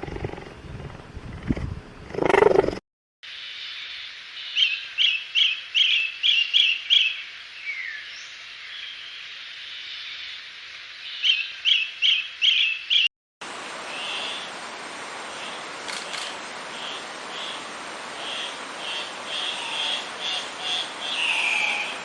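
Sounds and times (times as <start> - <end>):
background hiss: 13.4 - 22.0.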